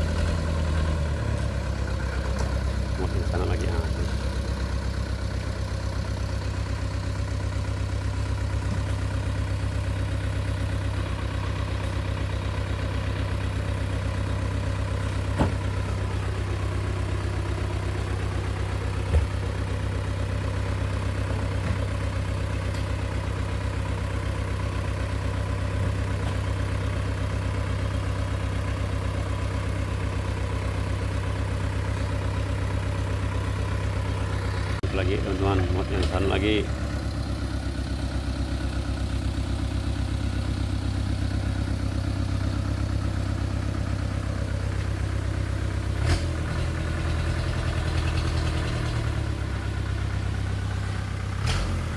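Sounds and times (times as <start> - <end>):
truck engine droning: 0.0 - 51.9.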